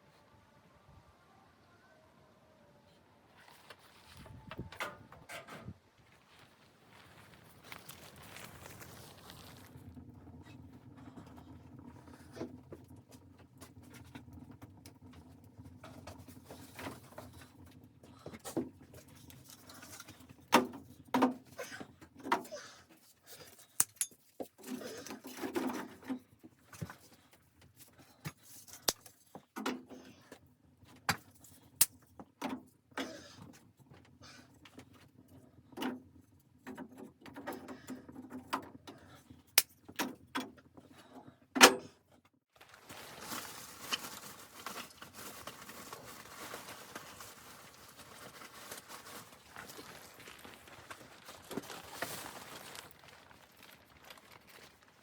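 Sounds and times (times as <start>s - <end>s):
rustling: 6.0s - 10.6s, 42.5s - 55.0s.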